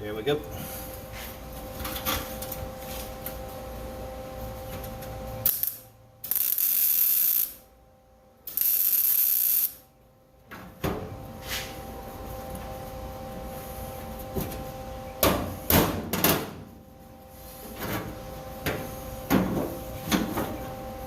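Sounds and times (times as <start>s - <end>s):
arc welder crackling hiss: 5.4s - 7.7s, 8.4s - 9.9s.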